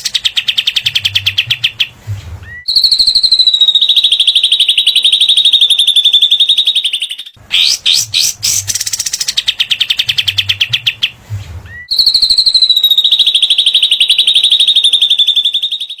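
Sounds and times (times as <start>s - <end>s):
songbird high trills: 7.4s - 9.6s.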